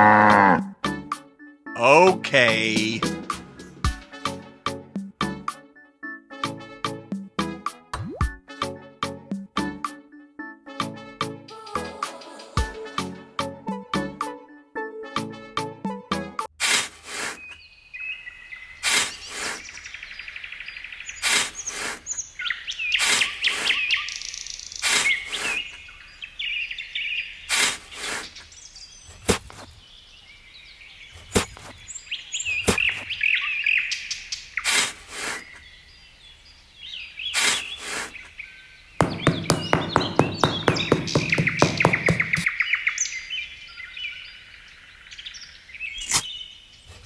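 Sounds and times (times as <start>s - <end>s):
music: 0.6s - 16.5s
small birds chirping: 17.1s - 47.0s
sharp taps: 39.0s - 42.5s.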